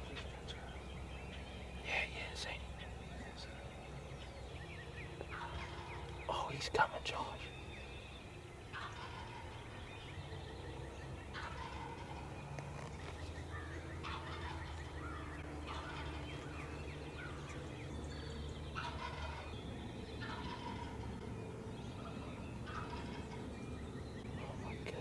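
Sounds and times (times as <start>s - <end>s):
turkey gobbling: 5.3s - 6.4s, 8.7s - 9.8s, 11.3s - 12.2s, 14.0s - 14.8s, 15.6s - 16.4s, 18.8s - 19.5s, 20.2s - 21.0s, 22.6s - 23.4s.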